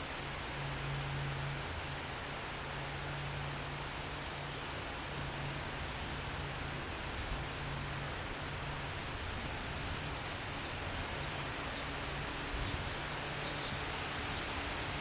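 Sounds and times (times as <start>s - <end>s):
rain: 0.0s - 15.0s
storm wind: 6.4s - 13.2s.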